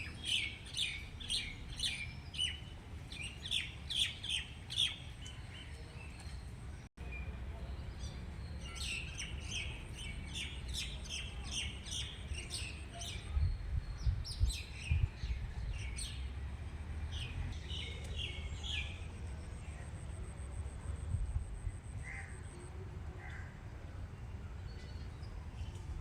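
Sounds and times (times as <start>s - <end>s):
small birds chirping: 0.0s - 16.4s.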